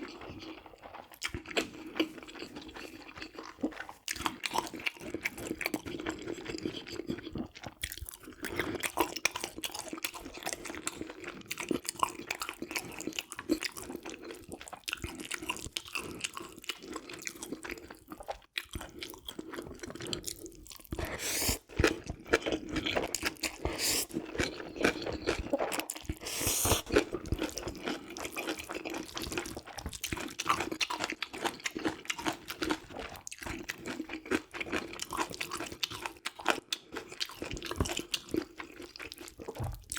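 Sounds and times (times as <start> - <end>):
person crunching and chewing food: 0.0 - 39.9
wet mouth clicks: 23.4 - 27.1.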